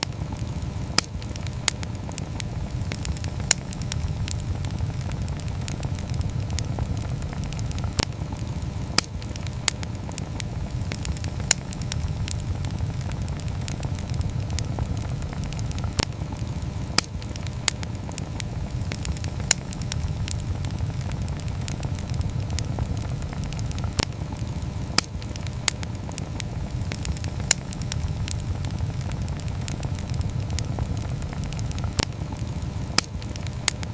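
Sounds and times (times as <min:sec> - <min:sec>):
campfire crackling and popping: 0:00.0 - 0:33.9.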